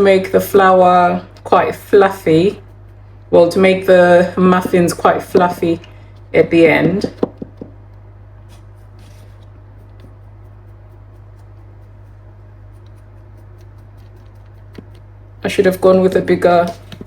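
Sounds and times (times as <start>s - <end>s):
flour sifting through a sieve: 0.0s - 7.2s, 8.4s - 17.0s
steady low hum: 0.0s - 17.0s.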